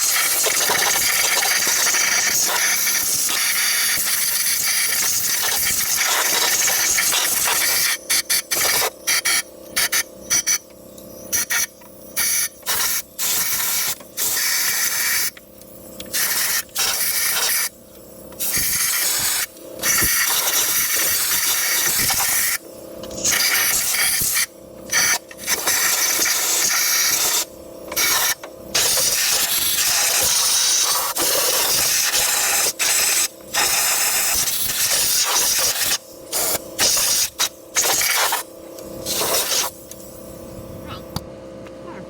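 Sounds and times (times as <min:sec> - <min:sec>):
compressed air blow gun hissing: 0:18.4 - 0:22.6, 0:39.0 - 0:40.2.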